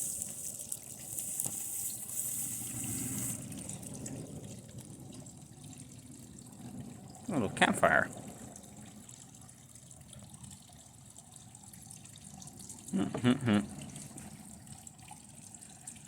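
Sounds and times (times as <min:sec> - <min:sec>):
circuit board crackling and hissing: 0:00.0 - 0:03.4
short vocal sound: 0:12.9 - 0:13.8.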